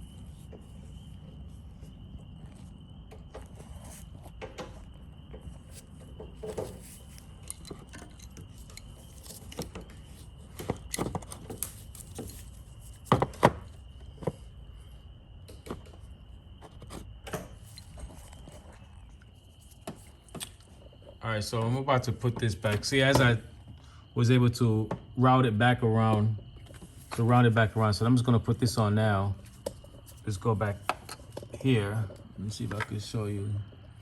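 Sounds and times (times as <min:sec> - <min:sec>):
metal tools clinking under car: 0:06.3 - 0:12.6.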